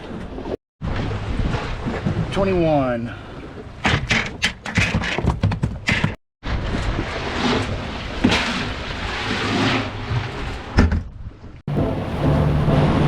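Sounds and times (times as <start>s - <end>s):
wind and water on microphone: 0.0s - 5.2s, 5.8s - 13.0s
boat engine running: 11.7s - 13.0s.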